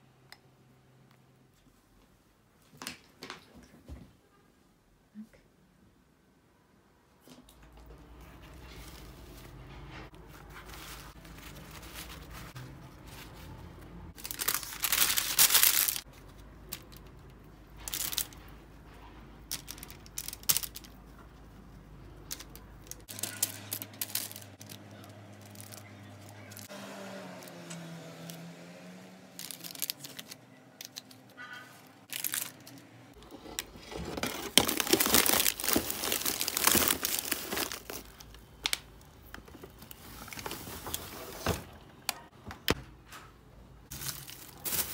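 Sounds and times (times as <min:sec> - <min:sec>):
paper rustling and crinkling: 0:08.2 - 0:26.7, 0:29.4 - 0:41.7, 0:43.9 - 0:44.9.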